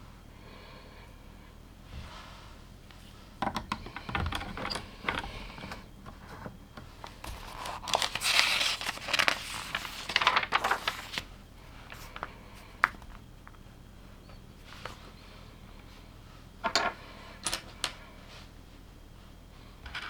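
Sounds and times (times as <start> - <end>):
rummaging through plastic pieces: 3.6 - 11.3.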